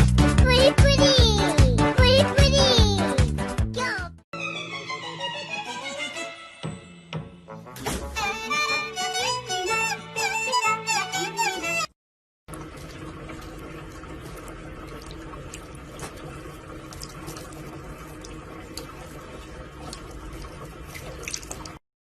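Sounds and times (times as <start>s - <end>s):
running water: 12.5s - 21.8s.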